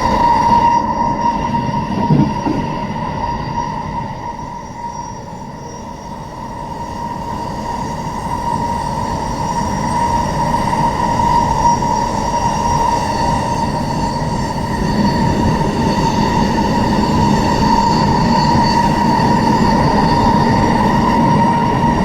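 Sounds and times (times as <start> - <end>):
train wheels rumbling on rail: 1.4 - 3.2.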